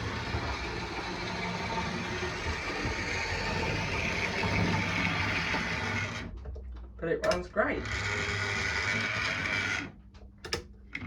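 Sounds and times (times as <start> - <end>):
model train motor whirring: 0.0 - 6.3, 7.8 - 9.9.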